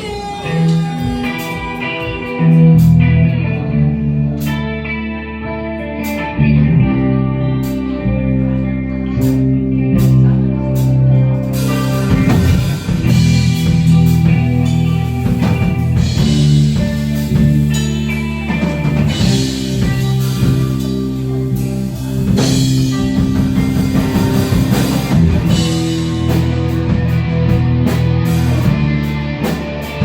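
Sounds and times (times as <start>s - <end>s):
guitar sustained chords: 0.0s - 30.0s.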